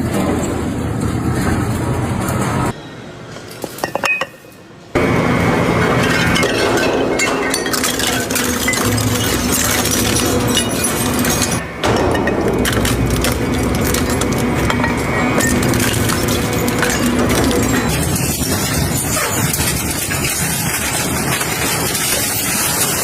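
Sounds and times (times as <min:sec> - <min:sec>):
crushing machine breaking material: 0:05.7 - 0:23.0.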